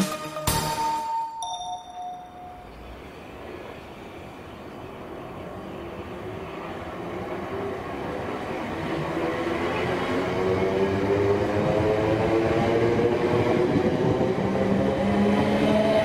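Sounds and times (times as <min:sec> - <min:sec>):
music track: 0:00.0 - 0:02.9
passenger train approaching: 0:00.0 - 0:16.0.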